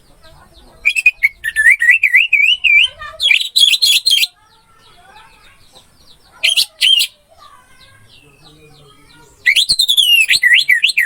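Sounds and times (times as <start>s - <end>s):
birds chirping: 0.0s - 11.0s
thrush singing whistled phrases: 0.8s - 4.4s, 6.4s - 7.2s, 9.4s - 11.0s.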